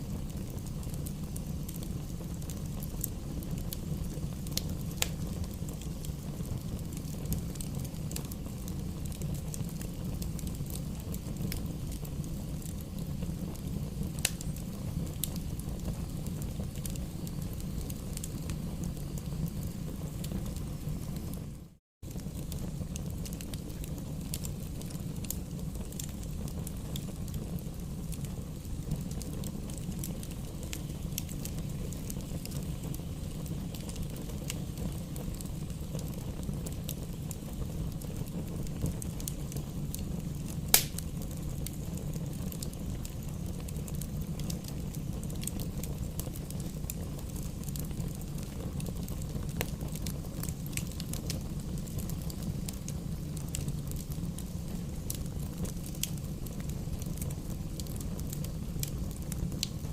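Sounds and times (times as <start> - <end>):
campfire crackling: 0.0 - 59.9
low fire rumble: 0.0 - 59.9
loud fire pop: 40.7 - 41.1.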